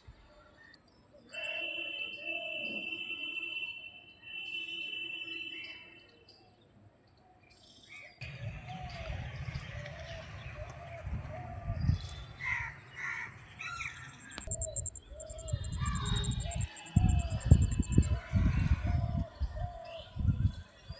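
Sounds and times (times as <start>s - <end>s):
low rumbling noise: 8.2s - 18.9s
high-pitched whine: 8.2s - 19.0s
birds calling: 8.2s - 20.2s.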